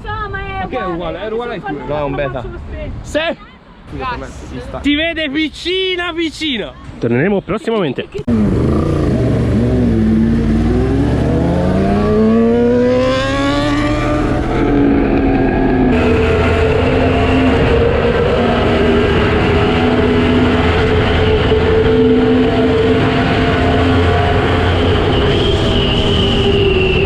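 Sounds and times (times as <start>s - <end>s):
motorcycle engine accelerating: 8.3s - 27.0s.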